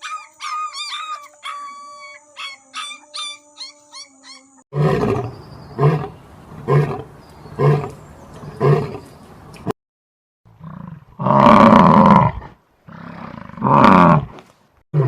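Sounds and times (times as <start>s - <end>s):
high-pitched animal calls: 0.0s - 6.1s
big cat roaring: 4.8s - 9.1s, 10.6s - 14.4s.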